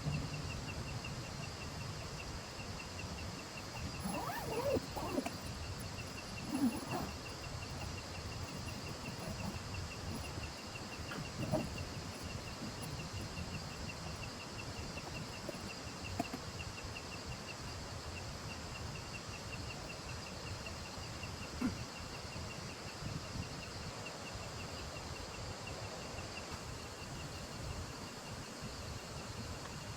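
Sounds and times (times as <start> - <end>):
background hiss: 0.0 - 29.9
insect chirping: 0.0 - 29.9.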